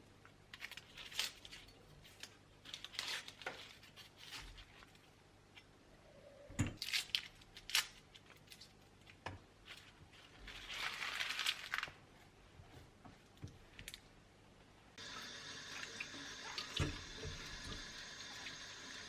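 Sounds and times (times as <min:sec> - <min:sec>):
plastic packaging crinkling: 0:00.5 - 0:05.0, 0:06.8 - 0:12.0.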